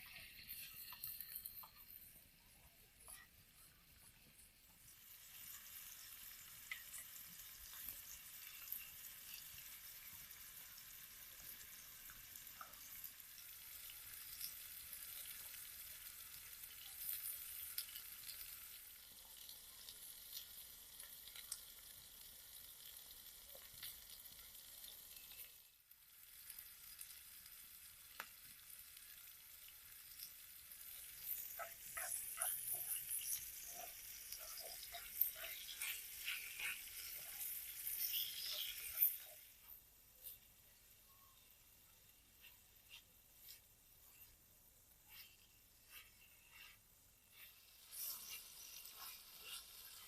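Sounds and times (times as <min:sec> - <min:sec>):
stirring ticks: 0:00.0 - 0:02.1, 0:28.1 - 0:40.4, 0:42.3 - 0:50.0
food sizzling in a pan: 0:00.0 - 0:50.0.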